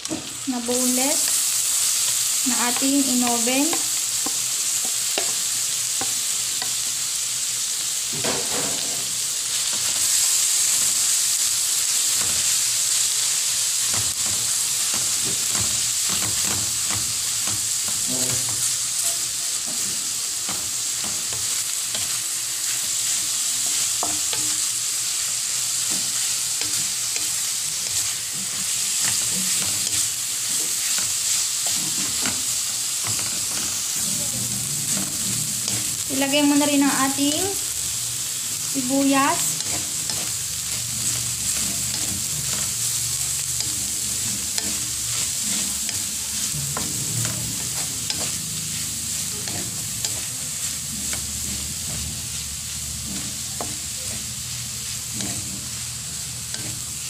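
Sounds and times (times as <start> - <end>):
fish sizzling in butter: 0.0 - 57.0
wooden spatula scraping pan: 25.7 - 37.6, 38.8 - 57.0.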